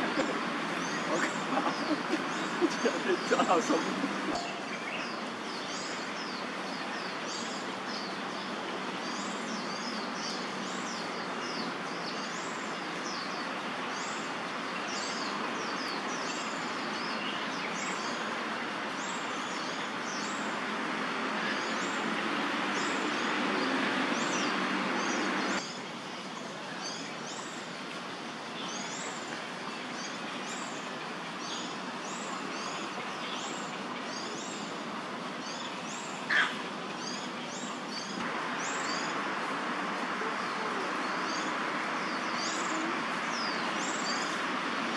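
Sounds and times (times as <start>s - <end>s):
steady background noise: 0.0s - 44.9s
bird calling high notes: 1.0s - 5.0s.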